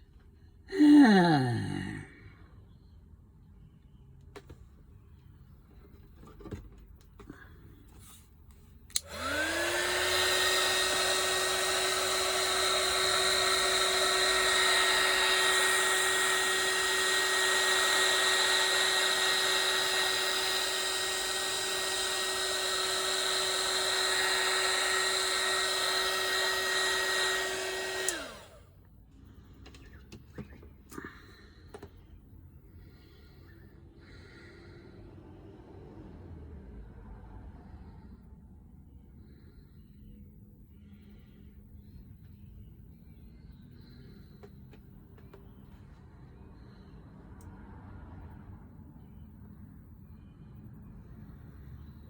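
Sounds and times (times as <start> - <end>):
hairdryer motor whine: 0.7 - 1.4, 8.9 - 28.9.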